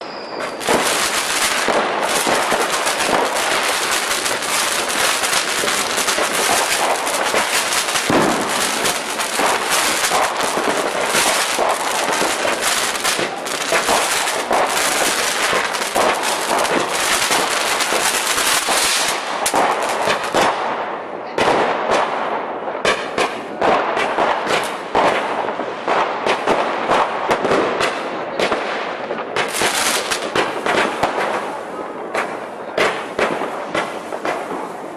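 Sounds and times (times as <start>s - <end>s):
firecrackers banging: 0.0s - 34.9s.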